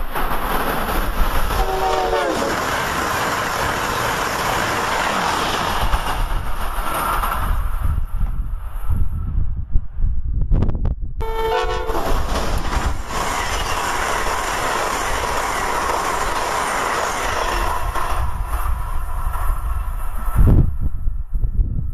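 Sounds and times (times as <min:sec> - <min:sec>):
train wheels rushing on rail: 0:00.0 - 0:09.4, 0:11.2 - 0:21.9
train horn blast: 0:01.6 - 0:02.5, 0:11.2 - 0:12.2.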